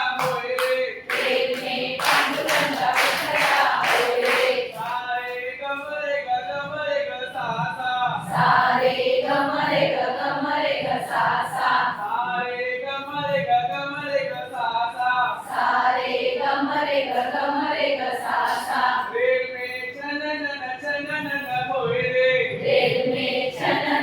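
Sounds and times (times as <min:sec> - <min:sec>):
group singing in unison: 0:00.0 - 0:05.4, 0:08.1 - 0:12.4, 0:15.4 - 0:19.2, 0:22.5 - 0:24.0.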